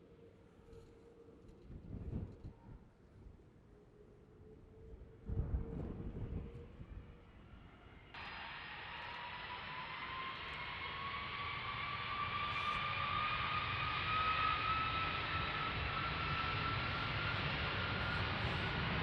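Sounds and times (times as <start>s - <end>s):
jet engines whining: 8.2s - 19.0s.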